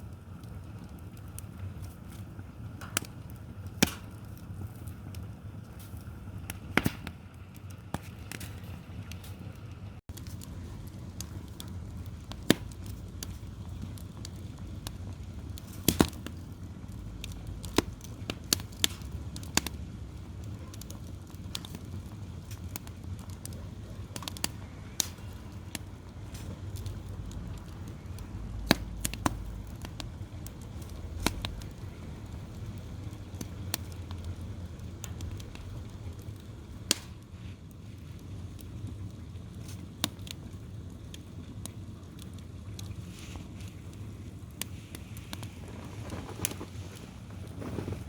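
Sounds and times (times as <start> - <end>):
wood fire crackling and popping: 0.0 - 48.0
low rumble: 24.5 - 36.7.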